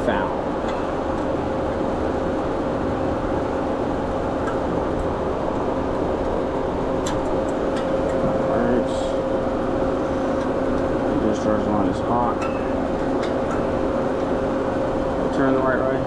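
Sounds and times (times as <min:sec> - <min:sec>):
refrigeration machinery hum: 0:00.0 - 0:16.0.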